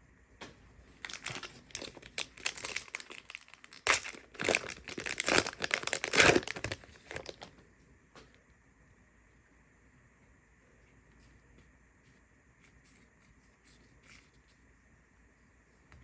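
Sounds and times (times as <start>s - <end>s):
plastic wrapper crinkling and tearing: 1.0s - 7.5s.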